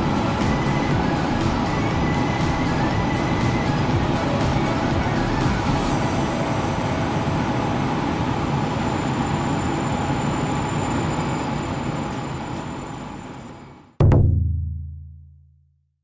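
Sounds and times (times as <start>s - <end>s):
electric train running: 0.0s - 10.6s.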